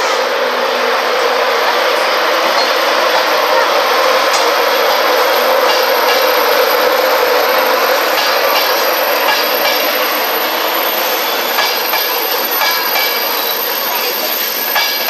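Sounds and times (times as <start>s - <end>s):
train passing on rails: 0.0s - 15.0s.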